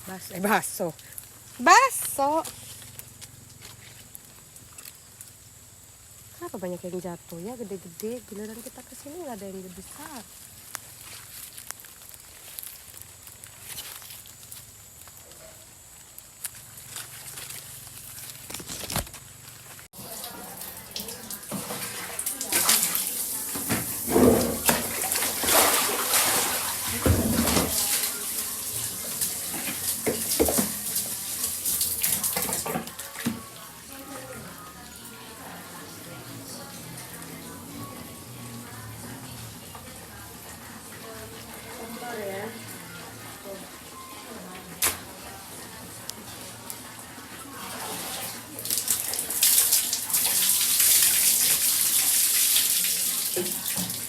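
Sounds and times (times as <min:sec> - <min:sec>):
rain falling: 0:00.0 - 0:14.0, 0:19.4 - 0:43.0, 0:48.4 - 0:54.0
water rushing and splashing: 0:20.0 - 0:34.5.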